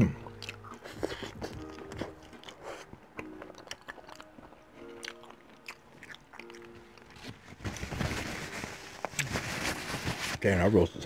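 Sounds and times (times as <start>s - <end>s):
soft background music: 0.0s - 11.0s
chewing with mouth clicks: 0.2s - 7.3s.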